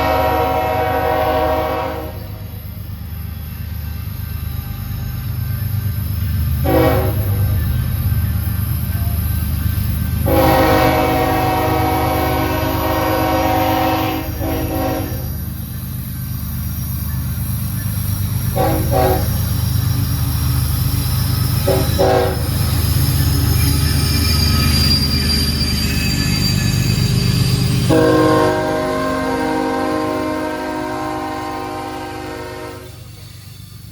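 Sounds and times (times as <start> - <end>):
locomotive air horn blasts: 0.0 - 2.5, 6.6 - 7.5, 10.2 - 15.4, 18.6 - 19.5, 21.6 - 22.6, 27.9 - 33.1
train rumbling past: 0.0 - 33.9.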